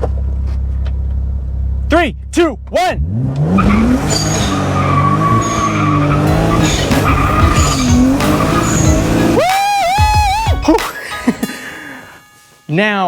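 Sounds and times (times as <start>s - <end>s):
tyres spinning and squealing: 2.8s - 10.5s
car engine revving hard: 3.0s - 9.4s.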